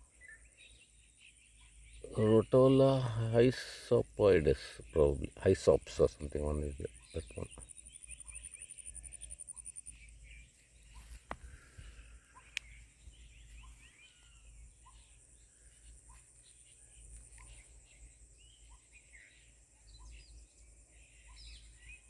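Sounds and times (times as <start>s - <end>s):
birds chirping: 0.0s - 22.0s
high insect trill: 2.0s - 19.3s.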